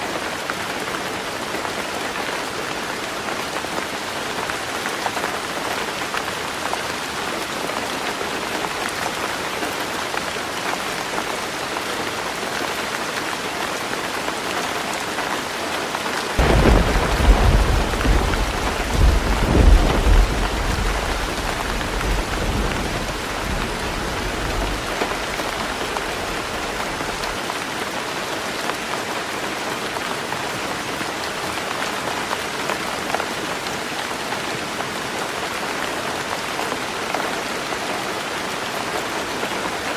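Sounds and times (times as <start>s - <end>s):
heavy rain on a roof: 0.0s - 39.9s
thunder rumbling: 16.4s - 27.3s.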